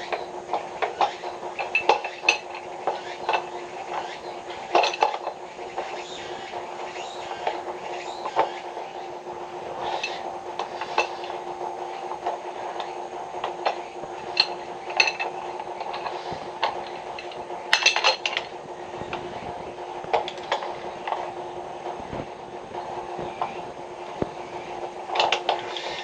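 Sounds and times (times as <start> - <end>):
steady mechanical hum: 0.0 - 26.0
tools clinking and tapping: 4.7 - 5.4, 12.2 - 18.5.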